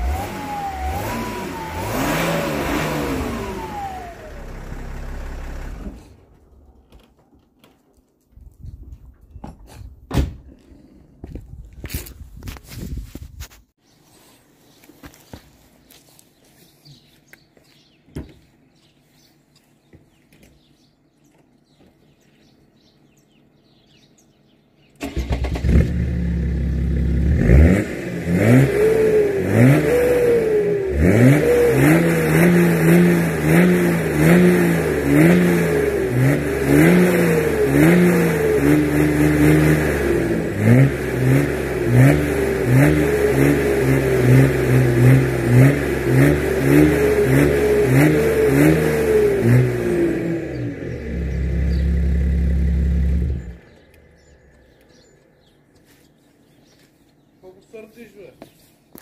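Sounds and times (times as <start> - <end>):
engine revving: 0.0 - 6.2, 25.0 - 55.2
diesel engine starting: 0.0 - 6.6, 24.5 - 55.7.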